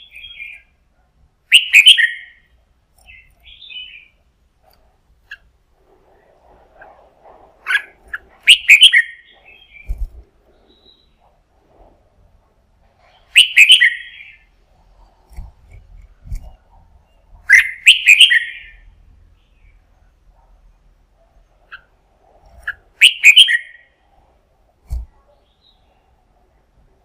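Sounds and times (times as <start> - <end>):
bird whistling song: 0.0 - 0.7, 1.5 - 4.2, 7.7 - 10.0, 13.1 - 14.5, 17.0 - 18.9, 22.6 - 24.0.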